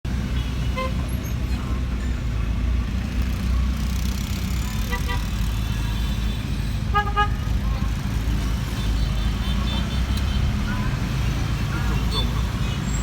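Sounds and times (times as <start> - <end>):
truck engine and road rumble: 0.0 - 13.0
truck horn toots: 4.8 - 7.6.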